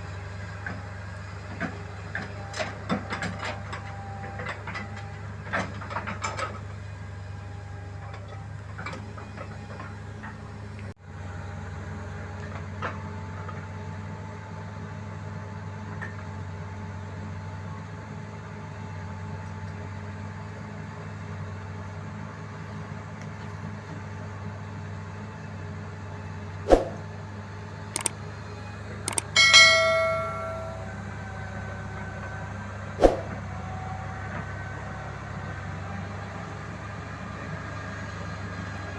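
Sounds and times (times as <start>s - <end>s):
metal clanging on metal: 29.1s - 31.0s
sharp metallic knocks: 29.1s - 31.0s, 33.0s - 33.4s.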